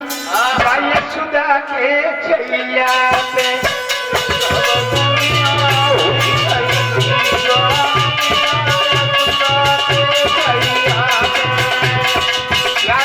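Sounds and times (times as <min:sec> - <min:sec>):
rhythmic drum beat: 0:00.0 - 0:01.5, 0:02.8 - 0:13.0
devotional melody instrumental: 0:00.0 - 0:13.0
light percussion strokes: 0:02.9 - 0:13.0.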